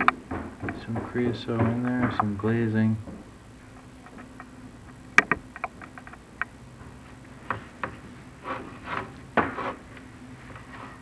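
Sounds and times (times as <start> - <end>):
camera knocking and scraping on tiles: 0.0 - 2.4, 7.4 - 10.1
faint steady hum: 0.0 - 11.0.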